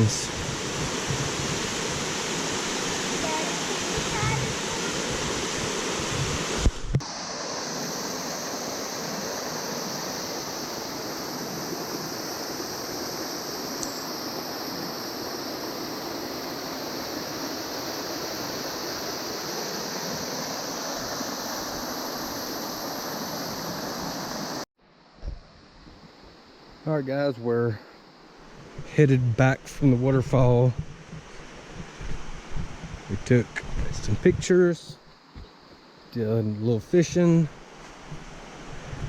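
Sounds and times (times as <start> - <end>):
waterfall rushing: 0.0 - 24.6.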